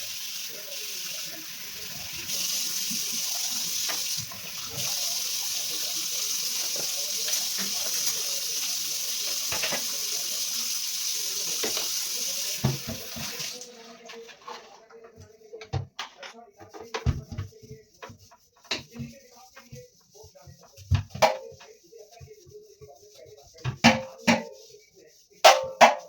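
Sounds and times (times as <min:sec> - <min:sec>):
tap water running into sink: 0:00.0 - 0:13.9.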